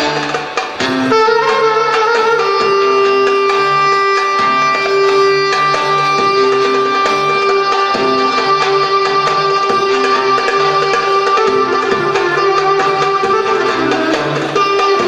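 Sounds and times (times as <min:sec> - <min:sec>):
art music ensemble playing: 0:00.0 - 0:15.0.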